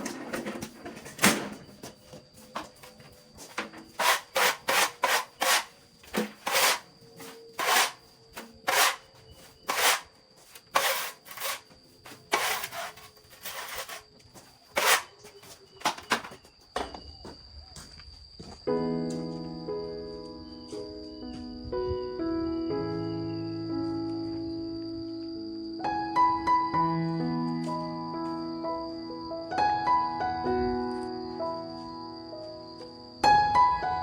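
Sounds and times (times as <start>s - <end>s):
hand saw cutting wood: 4.0s - 6.9s, 7.6s - 8.0s, 8.6s - 9.1s, 9.7s - 10.1s, 10.7s - 14.0s, 14.7s - 15.2s.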